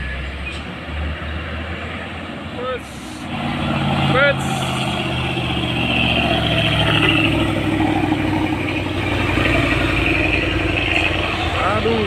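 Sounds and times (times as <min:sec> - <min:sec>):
road noise: 0:00.0 - 0:12.0
truck engine under load: 0:02.8 - 0:12.0.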